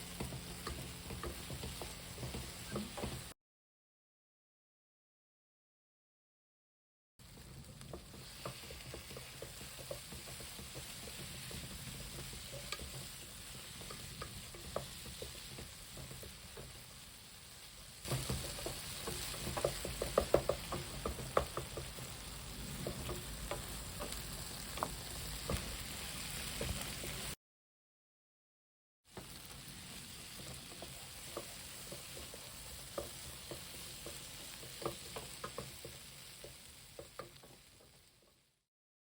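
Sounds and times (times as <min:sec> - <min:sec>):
meat sizzling in a pan: 0:00.0 - 0:03.3, 0:07.2 - 0:27.4, 0:29.1 - 0:38.6
spatula scraping a pan: 0:07.2 - 0:27.4, 0:29.2 - 0:38.4.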